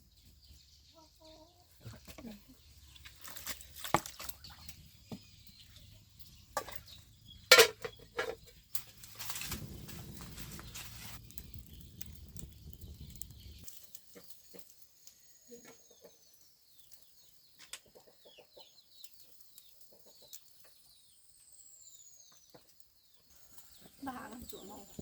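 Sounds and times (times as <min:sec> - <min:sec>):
low rumbling noise: 0:09.1 - 0:13.7
chickens clucking: 0:17.6 - 0:20.5.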